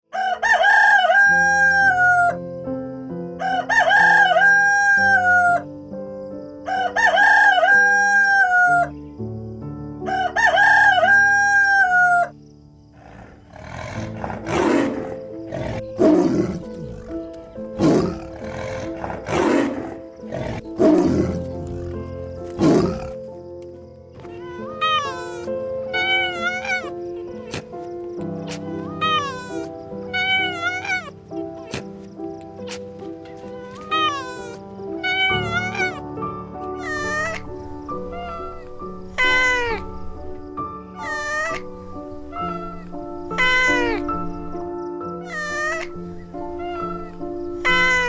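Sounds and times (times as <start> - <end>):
rooster crowing: 0.1 - 2.4, 3.4 - 5.6, 6.7 - 8.9, 10.1 - 12.3, 24.2 - 27.6, 28.5 - 31.1, 33.6 - 36.0, 36.8 - 40.4, 41.0 - 44.6, 45.3 - 48.0
background music: 0.1 - 48.0
harsh raspy animal calls: 12.9 - 23.2, 24.2 - 36.1, 36.7 - 44.7, 45.3 - 48.0.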